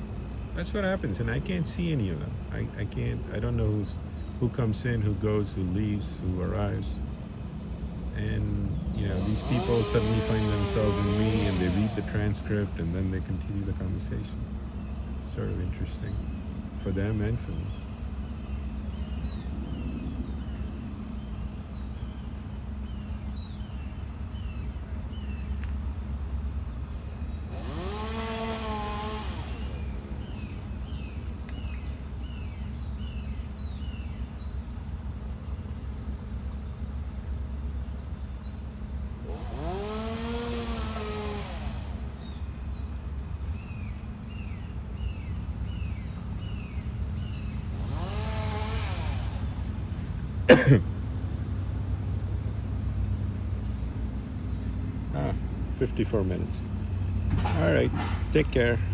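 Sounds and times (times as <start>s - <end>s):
bird chirping: 8.5s - 40.7s, 41.9s - 50.5s.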